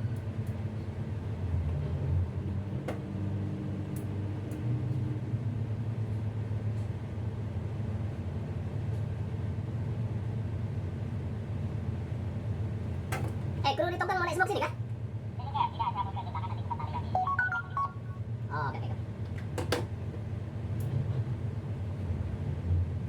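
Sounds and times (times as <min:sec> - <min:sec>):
diesel engines rumbling: 0:09.3 - 0:23.0.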